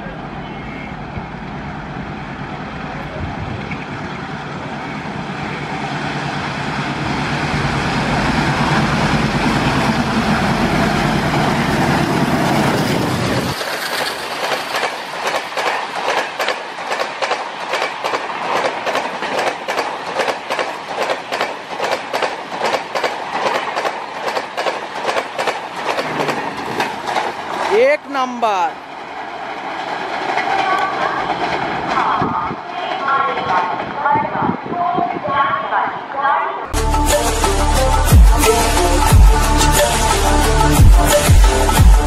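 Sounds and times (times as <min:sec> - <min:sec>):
diesel locomotive engines: 0:00.0 - 0:42.0
train wheels clickety-clack: 0:11.3 - 0:27.8.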